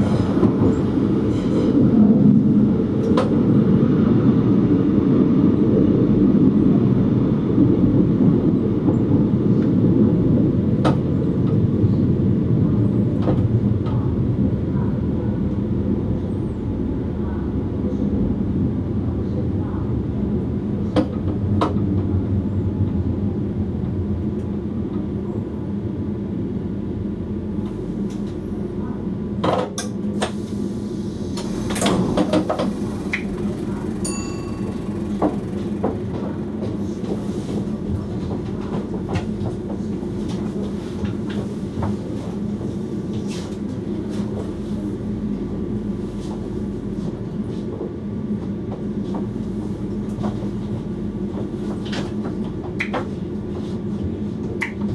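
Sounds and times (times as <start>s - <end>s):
electric train motor hum: 30.8s - 39.7s
wheel clicks on track: 31.7s - 37.2s.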